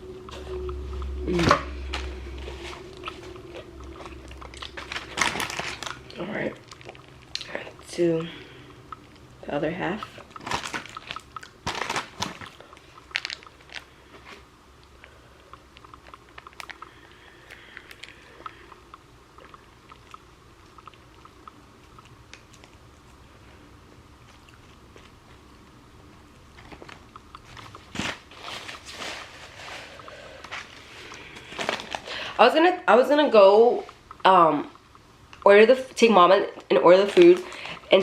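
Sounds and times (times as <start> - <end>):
chewing: 2.4 - 9.4, 10.0 - 14.2, 14.8 - 23.4, 24.2 - 25.7.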